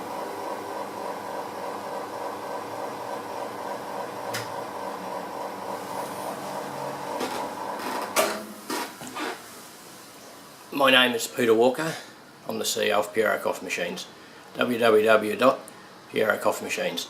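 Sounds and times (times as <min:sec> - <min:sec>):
espresso machine pump humming: 0:00.0 - 0:08.2.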